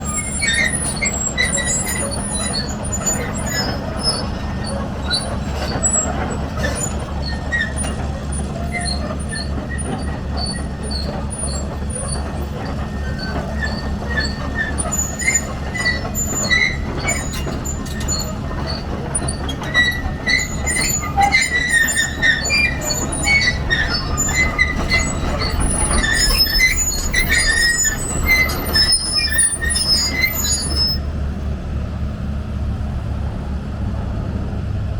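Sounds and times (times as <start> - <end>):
short high-pitched squeaks: 0.0 - 31.1
excavator diesel engine running: 0.0 - 34.9.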